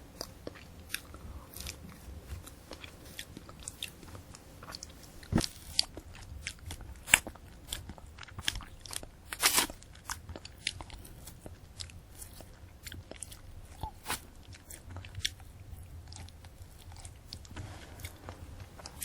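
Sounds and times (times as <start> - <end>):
crunchy chewing: 0.0 - 19.0
wet mouth sounds: 4.6 - 19.0.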